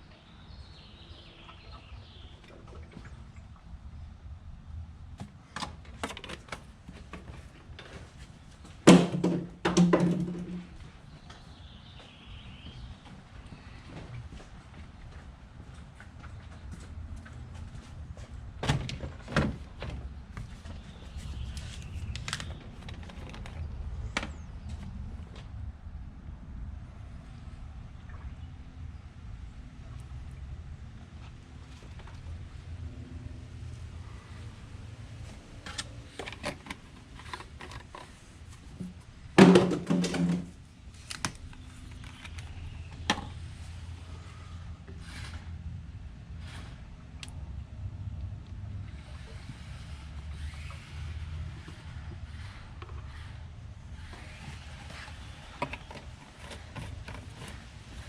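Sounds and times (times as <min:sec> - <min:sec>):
plastic bottles clicking and knocking: 0:08.9 - 0:10.7, 0:35.7 - 0:43.4
sharp knocks and clunks: 0:08.9 - 0:10.8, 0:38.8 - 0:40.6.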